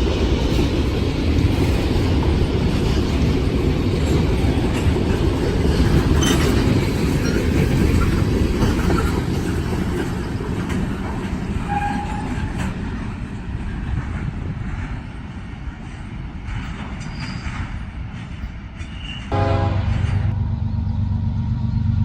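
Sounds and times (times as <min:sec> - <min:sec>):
train cars rumbling past: 0:00.0 - 0:22.0
wheels clicking over rail joints: 0:00.4 - 0:19.2
steel wheels squealing: 0:05.9 - 0:09.6, 0:11.6 - 0:12.6, 0:16.9 - 0:19.3.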